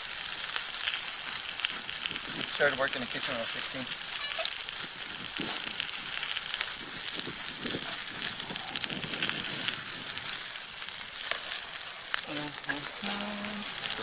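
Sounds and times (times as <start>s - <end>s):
meat sizzling in a pan: 0.0s - 14.0s
pops and crackles: 0.0s - 14.0s.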